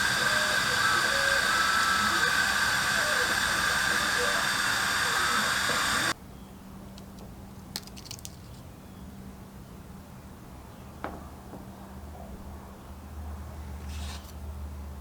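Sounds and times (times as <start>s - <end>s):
pressurized jet hissing: 0.0s - 6.2s.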